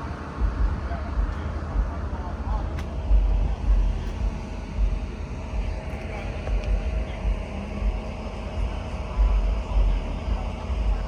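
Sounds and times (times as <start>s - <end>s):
faint steady hum: 0.0s - 11.0s
faint voices: 0.0s - 11.0s
low uneven rumble: 0.0s - 11.0s.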